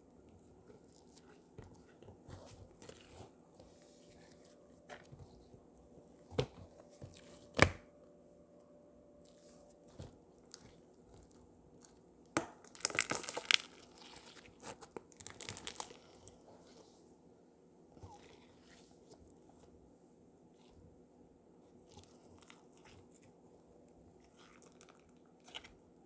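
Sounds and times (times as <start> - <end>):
slime popping and crackling: 12.4 - 16.3
slime squeezed and stretched: 12.7 - 16.2.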